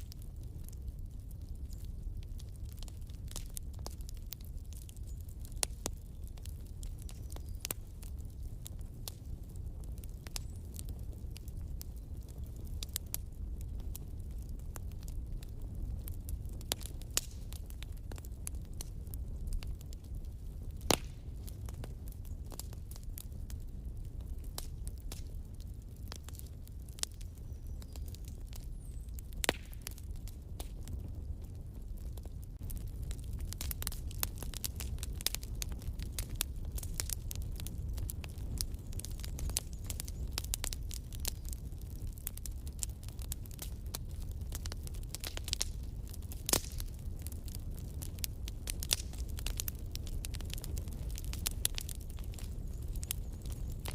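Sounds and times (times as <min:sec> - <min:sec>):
burning logs rumbling: 0:00.0 - 0:53.9
wood fire crackling: 0:00.0 - 0:53.9
sharp pops of fire: 0:16.0 - 0:23.6, 0:24.3 - 0:53.9.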